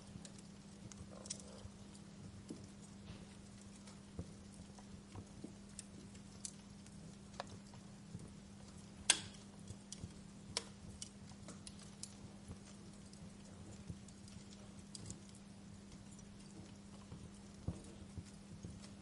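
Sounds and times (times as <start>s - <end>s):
faint low hum: 0.0s - 19.0s
fire popping and snapping: 0.0s - 19.0s
wood fire crackling: 0.0s - 19.0s.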